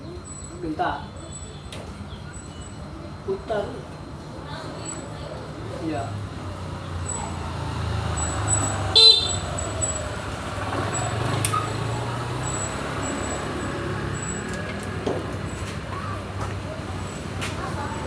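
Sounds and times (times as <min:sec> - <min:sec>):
vehicle engine running: 0:07.1 - 0:18.0
short horn beep: 0:09.0 - 0:09.6.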